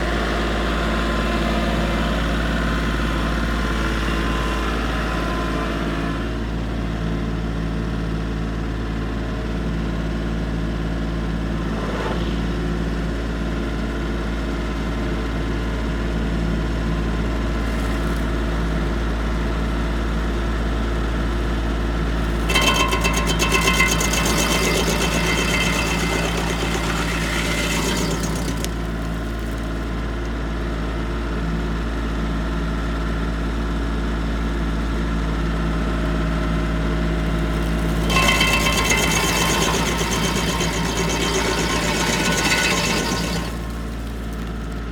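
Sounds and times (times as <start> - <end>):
tractor engine running: 22.2 - 30.1, 37.2 - 44.9
stump grinder rasping with whine: 22.2 - 30.2, 37.2 - 44.9.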